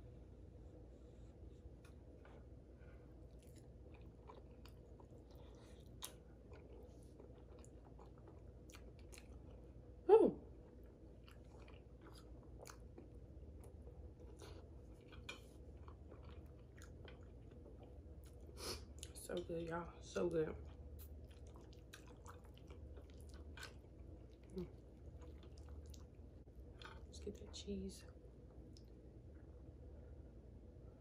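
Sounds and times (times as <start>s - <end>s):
person chewing: 1.8s - 9.9s, 10.6s - 19.2s, 20.6s - 27.2s.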